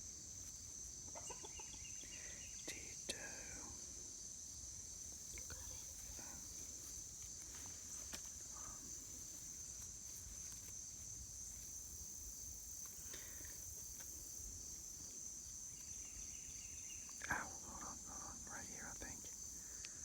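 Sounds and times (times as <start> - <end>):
insect chorus drone: 0.0 - 20.0
netting rustling and clicking: 9.5 - 11.1.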